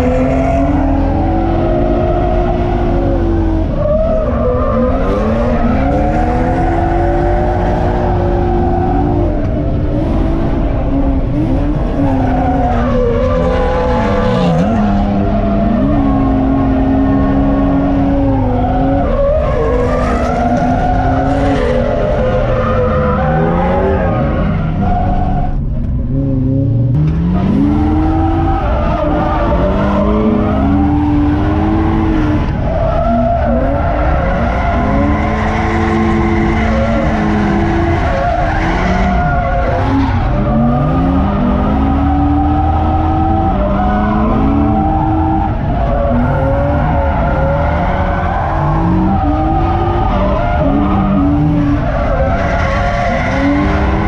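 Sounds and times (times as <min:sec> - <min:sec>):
car engine revving hard: 0:00.0 - 0:54.0.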